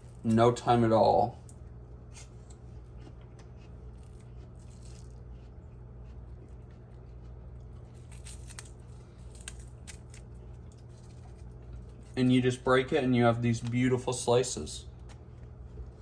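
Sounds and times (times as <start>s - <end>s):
steady low hum: 0.0s - 16.0s
apple crunching and clicking: 2.2s - 12.2s, 14.8s - 16.0s.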